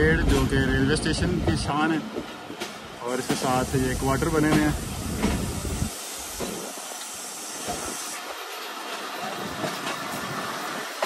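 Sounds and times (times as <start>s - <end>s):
train hissing: 3.0s - 11.0s.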